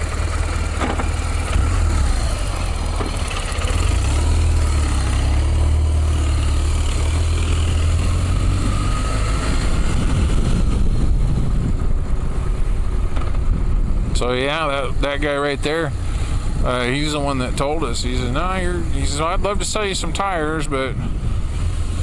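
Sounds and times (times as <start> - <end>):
motorcycle engine rumbling: 0.0 - 22.0
road noise: 0.0 - 22.0
wind noise: 7.6 - 22.0.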